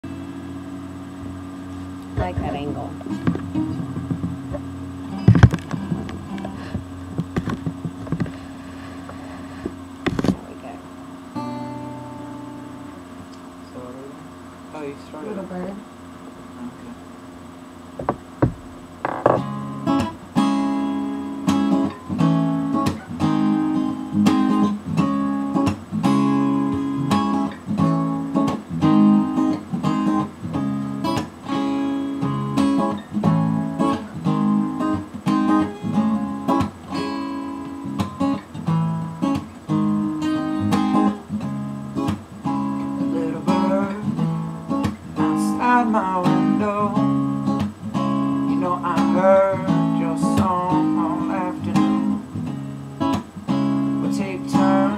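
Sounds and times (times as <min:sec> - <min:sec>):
acoustic guitar strumming chords: 0:00.0 - 0:54.9
sharp knocks: 0:03.2 - 0:04.6, 0:05.2 - 0:08.4, 0:18.0 - 0:19.5.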